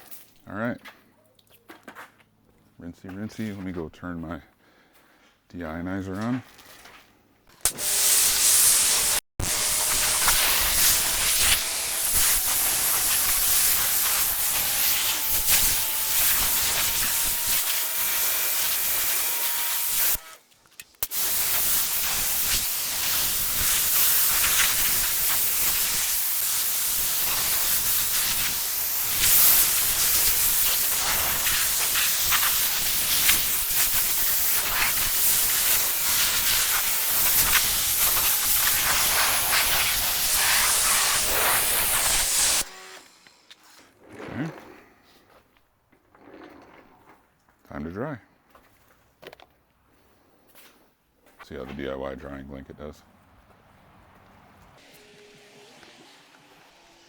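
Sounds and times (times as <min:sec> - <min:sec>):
water spraying on car bodywork: 0:09.9 - 0:17.8, 0:21.1 - 0:42.7.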